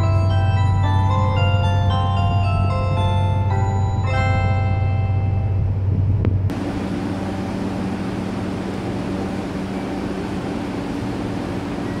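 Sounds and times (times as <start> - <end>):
loud deep hum: 4.8 - 12.0.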